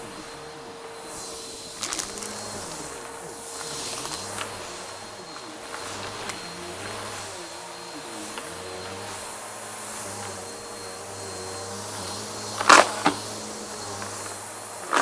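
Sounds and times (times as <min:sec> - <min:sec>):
vacuum cleaner running: 0:00.0 - 0:15.0
debris crunching in vacuum: 0:01.1 - 0:07.4.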